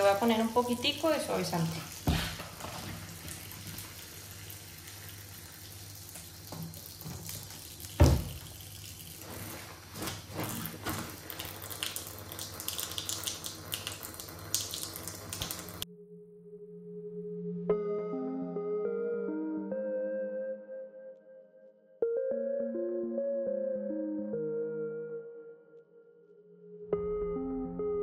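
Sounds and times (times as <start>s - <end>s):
tap running into steel sink: 6.2s - 8.6s
soft music with held tone: 15.8s - 28.0s.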